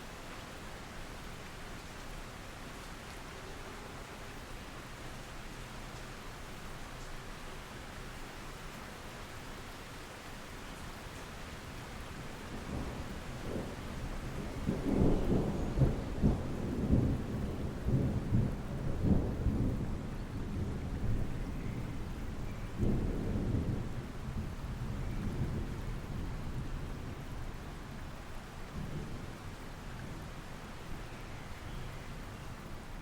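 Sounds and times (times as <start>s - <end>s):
steady rain: 0.0s - 33.0s
thunder rumbling and crackling: 12.5s - 27.3s.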